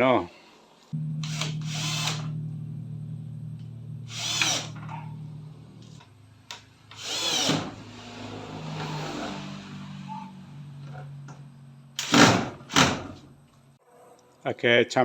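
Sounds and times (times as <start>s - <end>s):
power drill motor hum: 1.0s - 9.3s, 12.0s - 13.2s.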